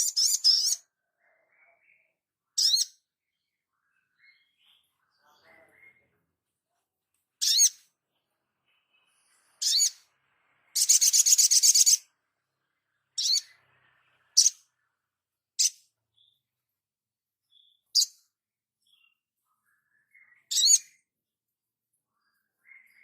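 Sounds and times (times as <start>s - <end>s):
songbird high sweeping calls: 0.0s - 0.9s, 2.6s - 3.0s, 7.4s - 7.9s, 8.7s - 12.2s, 13.1s - 14.7s, 17.5s - 18.3s, 18.9s - 21.0s
songbird fast trill: 10.8s - 12.1s.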